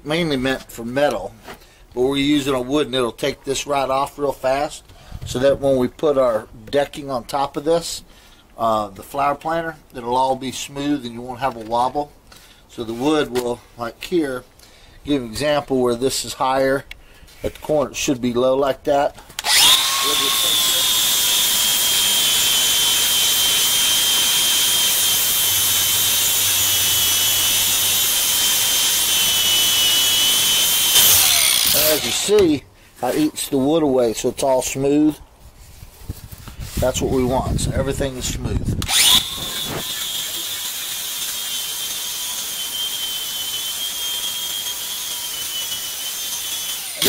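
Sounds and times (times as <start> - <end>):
angle grinder sanding wood: 19.4 - 33.4, 38.9 - 47.0.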